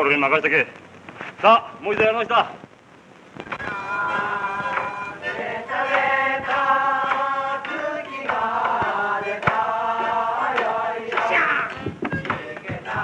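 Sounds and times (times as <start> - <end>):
men singing together: 3.7 - 13.0
sharp taps: 5.9 - 13.0.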